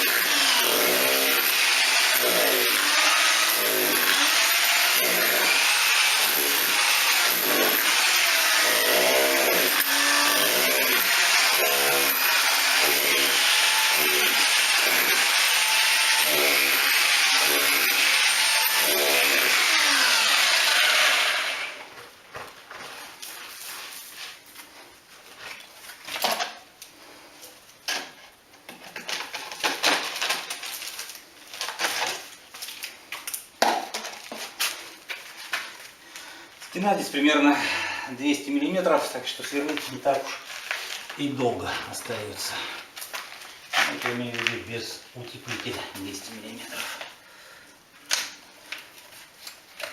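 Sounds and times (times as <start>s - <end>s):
electric drill boring into wall: 0.0s - 21.9s.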